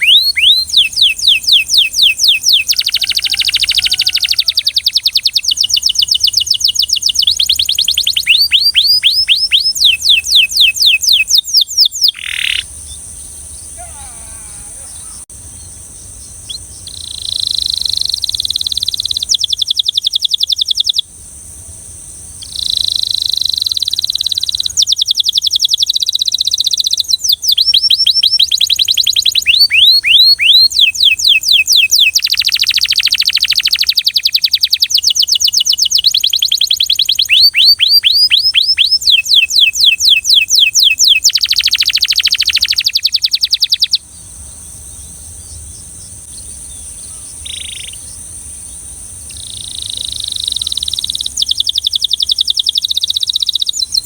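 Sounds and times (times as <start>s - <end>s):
canary singing trills: 0.0s - 21.1s, 22.4s - 54.0s.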